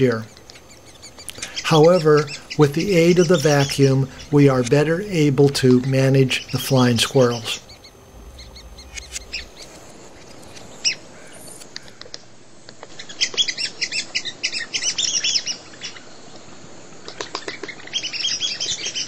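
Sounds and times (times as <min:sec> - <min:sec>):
birds chirping: 0:00.0 - 0:12.1
faint outdoor background: 0:00.0 - 0:19.0.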